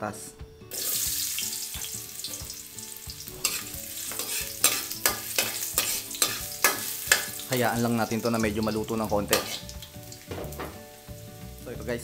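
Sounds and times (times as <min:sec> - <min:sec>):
potatoes sizzling in oil: 0:00.7 - 0:12.0
metal spoon scraping a wok: 0:03.4 - 0:07.5, 0:09.3 - 0:09.7.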